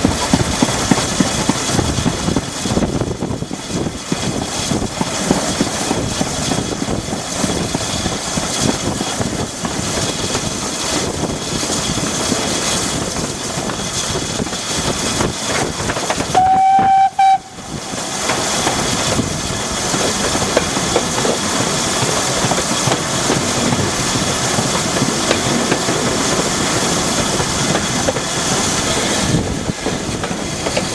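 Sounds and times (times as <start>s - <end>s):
train running: 0.0s - 30.9s
train whistle: 16.3s - 17.8s.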